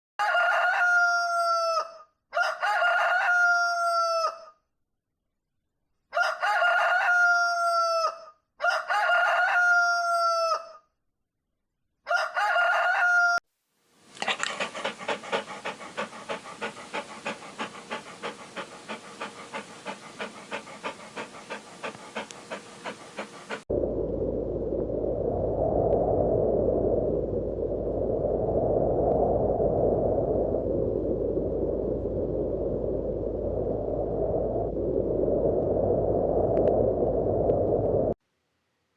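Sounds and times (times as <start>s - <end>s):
rooster crowing: 0.2s - 4.5s, 6.1s - 10.8s, 12.1s - 13.4s.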